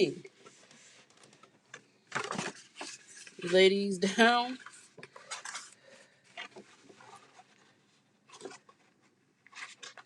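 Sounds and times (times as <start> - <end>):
paper rustling and crinkling: 2.1 - 3.6, 4.5 - 10.0.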